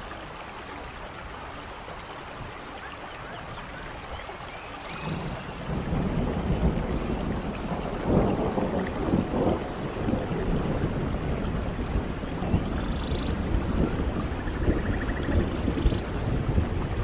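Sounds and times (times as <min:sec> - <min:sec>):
steady rain: 0:00.0 - 0:17.0
low rolling thunder: 0:04.9 - 0:17.0.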